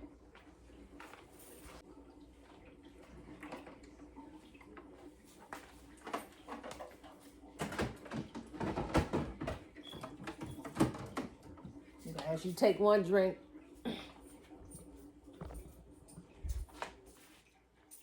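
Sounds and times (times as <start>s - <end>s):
plastic tray clattering: 7.6s - 11.4s
refrigerator opening: 7.6s - 11.6s.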